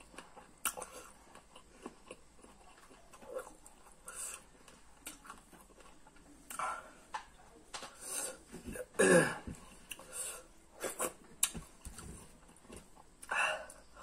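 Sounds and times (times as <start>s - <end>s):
chewing and lip smacking: 0.0s - 7.3s.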